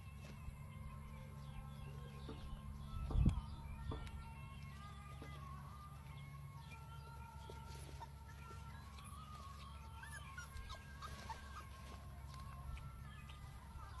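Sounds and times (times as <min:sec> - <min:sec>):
steady low hum: 0:00.0 - 0:14.0
puppy squeaking and whimpering: 0:09.8 - 0:12.0.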